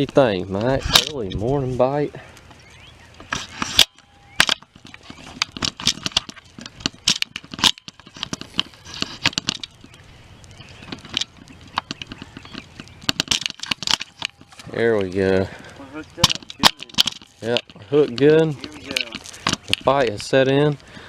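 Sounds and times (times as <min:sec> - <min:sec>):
sharp clicks and knocks: 0:03.2 - 0:10.0, 0:10.8 - 0:15.1, 0:16.2 - 0:20.9.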